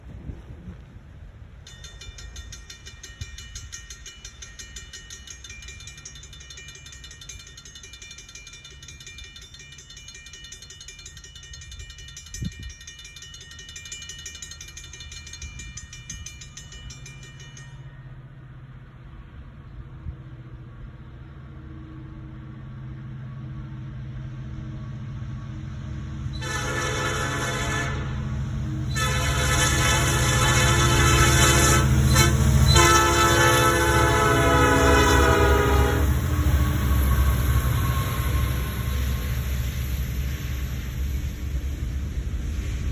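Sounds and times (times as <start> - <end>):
freight locomotive rumble: 0.0 - 42.9
rapid pulsing high ringing: 1.7 - 18.4, 25.5 - 42.6
locomotive air horn blasts: 26.4 - 28.3, 28.9 - 39.3.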